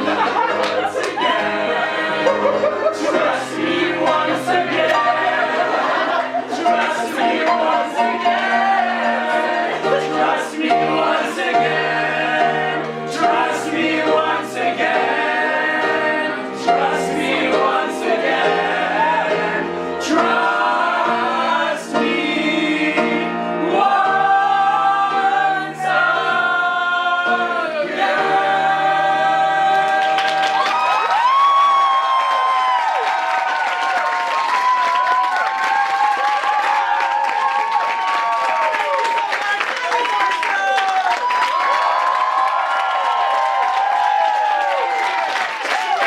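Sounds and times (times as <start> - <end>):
group of voices singing: 0.0 - 30.8.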